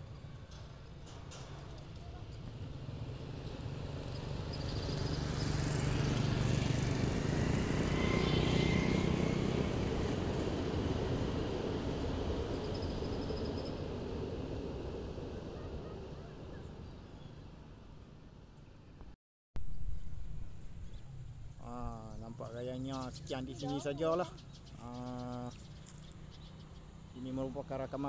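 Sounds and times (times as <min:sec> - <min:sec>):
motorcycle passing: 0:00.0 - 0:18.1, 0:19.9 - 0:28.0
electric train rumbling past: 0:00.0 - 0:18.3.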